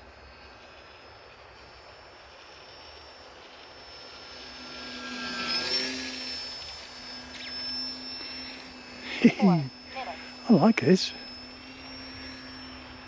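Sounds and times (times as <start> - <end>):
model plane motor whining: 0.0 - 13.0.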